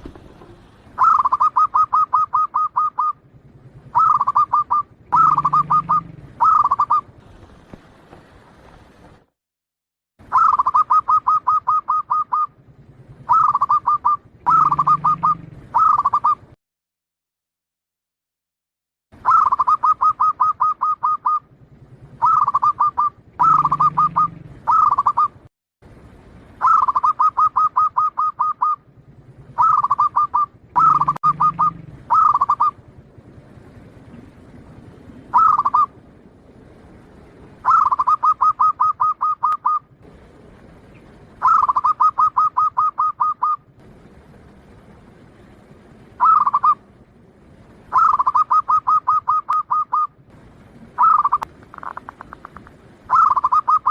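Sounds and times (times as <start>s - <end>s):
dove cooing: 0.0s - 7.8s, 10.3s - 12.6s, 13.2s - 16.5s, 19.2s - 21.5s, 22.1s - 25.4s, 26.6s - 32.9s, 34.0s - 35.9s, 37.6s - 39.9s, 41.4s - 43.6s, 46.2s - 46.9s, 47.9s - 50.2s, 50.8s - 53.9s.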